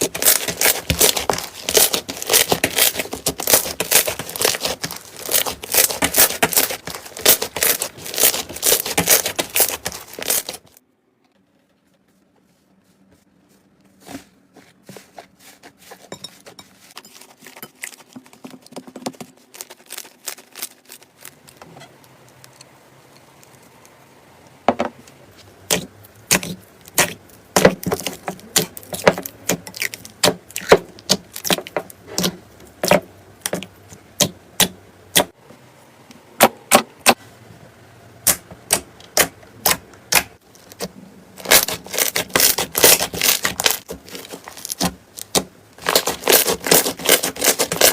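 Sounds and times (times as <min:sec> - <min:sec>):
slime crackling and popping: 0:00.0 - 0:10.8, 0:19.4 - 0:21.6, 0:25.7 - 0:33.6, 0:38.2 - 0:47.9.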